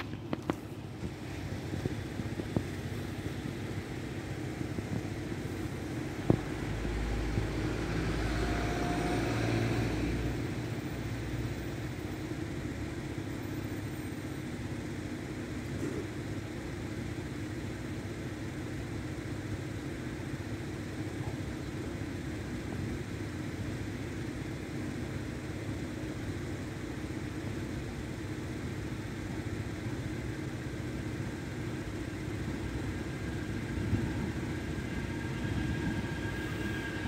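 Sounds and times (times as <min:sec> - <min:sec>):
background traffic hum: 0:00.0 - 0:37.0
vehicle passing by: 0:06.7 - 0:10.5.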